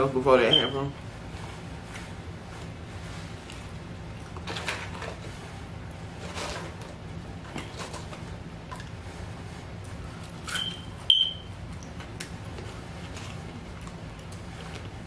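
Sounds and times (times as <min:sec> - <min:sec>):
steady low hum: 0:00.0 - 0:15.0
person chewing food: 0:11.7 - 0:15.0.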